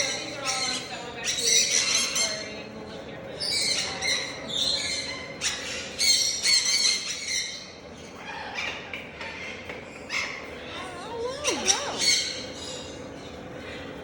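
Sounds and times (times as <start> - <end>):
parrots squawking: 0.0 - 2.6, 3.4 - 13.1.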